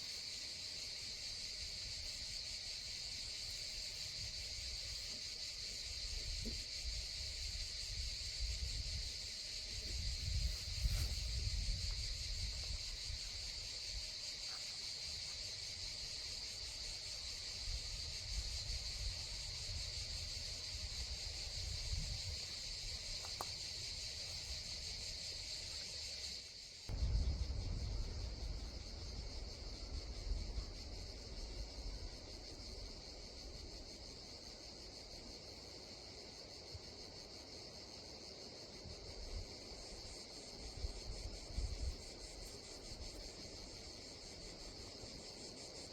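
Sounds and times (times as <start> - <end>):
insects chirring: 0.0 - 45.9
low rumble: 26.9 - 30.6.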